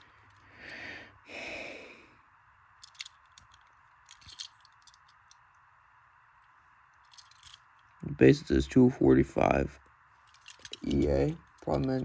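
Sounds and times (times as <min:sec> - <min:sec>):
person breathing out: 0:00.5 - 0:02.2
toy car clicks and taps: 0:02.8 - 0:05.4, 0:10.3 - 0:12.0.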